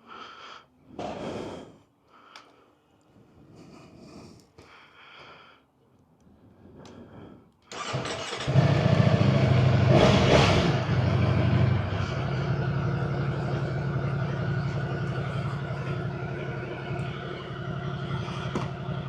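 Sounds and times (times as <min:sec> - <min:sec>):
motorcycle engine starting and idling: 0:07.7 - 0:19.0.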